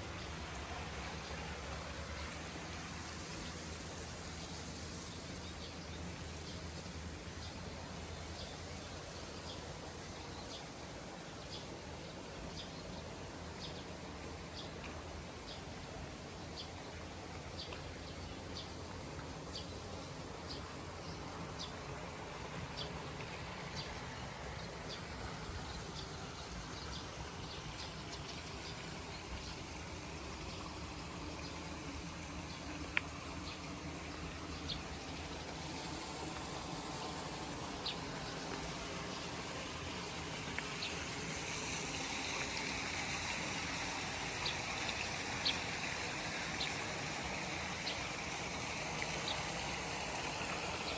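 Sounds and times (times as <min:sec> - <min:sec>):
even hiss: 0:00.0 - 0:50.9
low steady rumble: 0:11.8 - 0:50.9.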